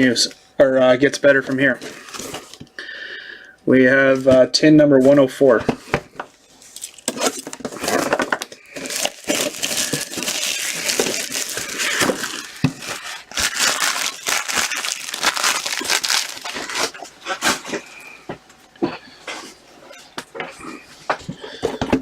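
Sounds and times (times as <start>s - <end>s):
plastic wrapping crinkling and tearing: 6.6s - 17.8s.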